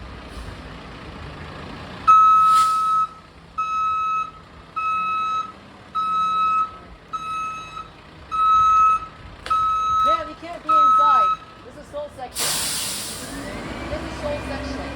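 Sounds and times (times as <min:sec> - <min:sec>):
truck backup alarm beeping: 0:02.1 - 0:11.6, 0:12.4 - 0:14.9
hiss of air: 0:12.4 - 0:13.4.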